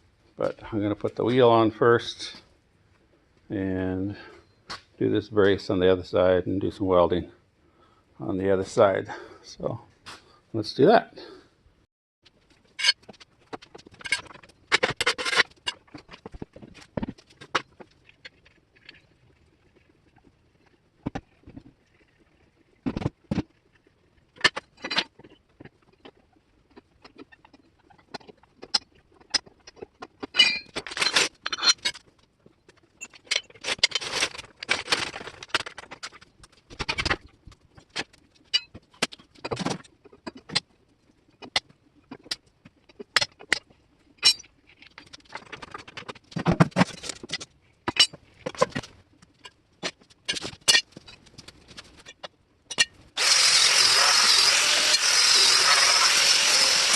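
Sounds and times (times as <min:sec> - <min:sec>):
scraping and rustling: 0:12.3 - 0:40.5
metal tools clinking and clanking: 0:13.9 - 0:16.2, 0:30.2 - 0:32.0, 0:44.2 - 0:45.7.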